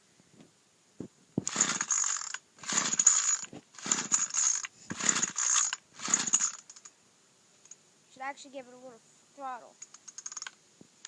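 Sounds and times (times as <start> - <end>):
pull-starter yanked cranking engine: 1.4 - 6.9, 9.8 - 10.6.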